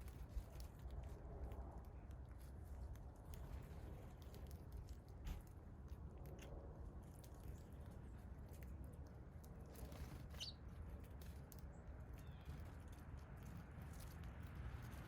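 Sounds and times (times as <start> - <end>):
high songbird chirp: 10.3 - 10.6.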